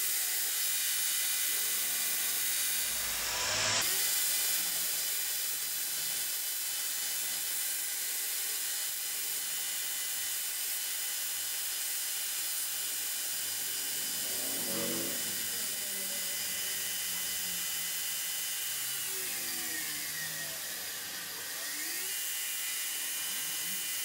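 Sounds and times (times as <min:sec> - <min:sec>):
power tool whirring: 0:00.0 - 0:24.0.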